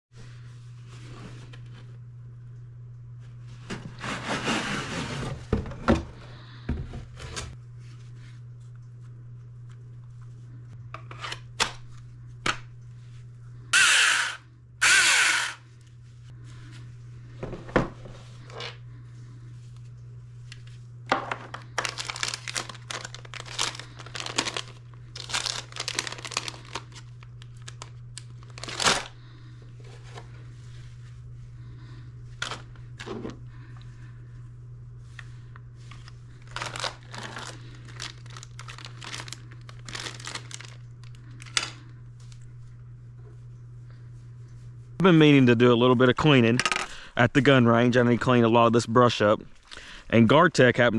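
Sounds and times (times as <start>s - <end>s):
steady low hum: 0.2s - 50.9s
packaging rustling and crinkling: 21.5s - 29.2s, 35.8s - 42.4s.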